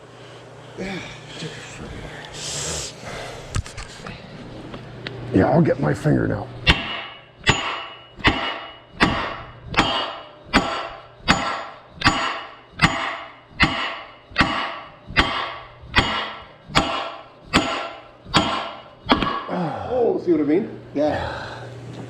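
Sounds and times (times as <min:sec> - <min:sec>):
hammer striking metal: 0:06.6 - 0:19.6.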